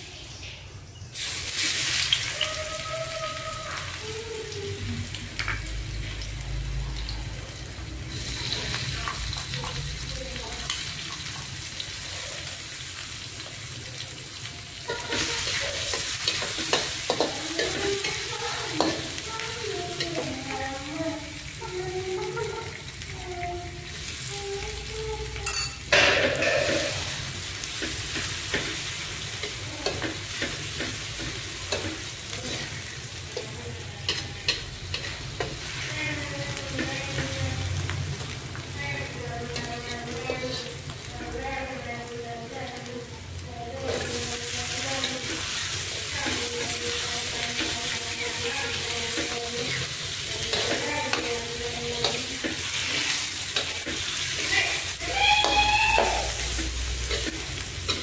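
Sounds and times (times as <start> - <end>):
garlic sizzling in hot oil: 0.0 - 58.0
metal spatula scraping wok: 25.5 - 35.9, 56.3 - 58.0.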